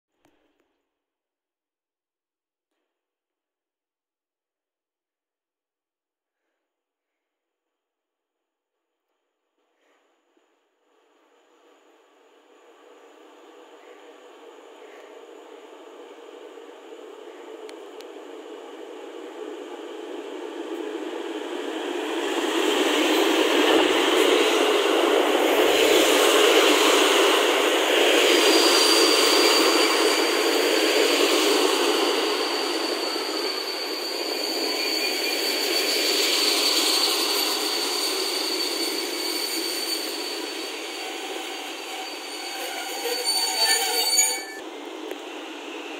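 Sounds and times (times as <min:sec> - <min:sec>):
train rolling past: 0:10.3 - 0:45.9
high brake squeal: 0:22.4 - 0:44.6.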